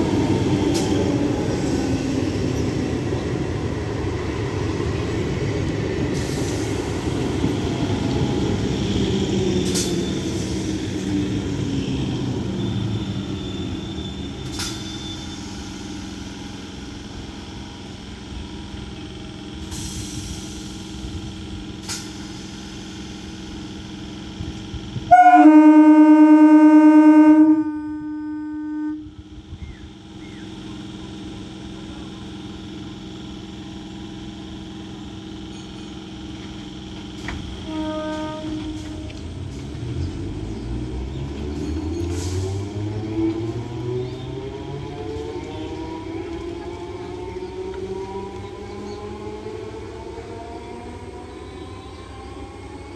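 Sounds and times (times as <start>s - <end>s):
train rumbling past: 0.0s - 52.9s
train horn: 25.1s - 29.2s, 37.6s - 39.3s.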